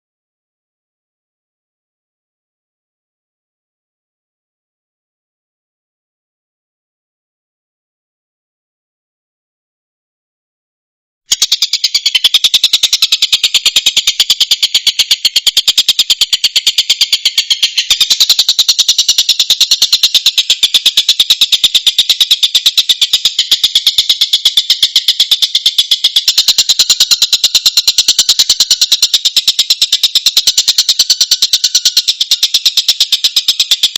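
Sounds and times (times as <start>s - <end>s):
kingfisher calling: 11.3s - 33.9s.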